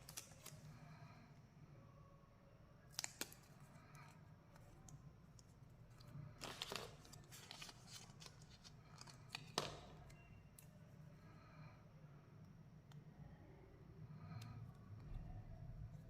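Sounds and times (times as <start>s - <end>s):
packaging clicks: 0.0s - 0.7s, 2.9s - 3.5s
plastic wrapper crinkling: 0.0s - 0.7s, 6.0s - 10.1s.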